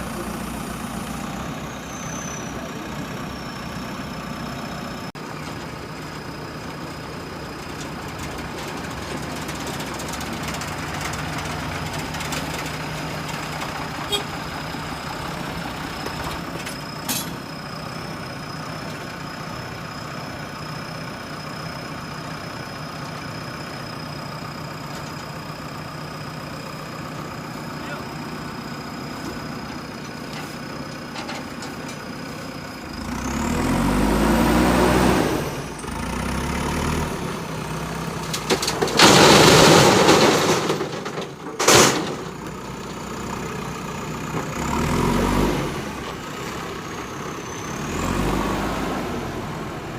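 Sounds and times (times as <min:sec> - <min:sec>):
diesel engine idling and revving: 0:00.0 - 0:49.9.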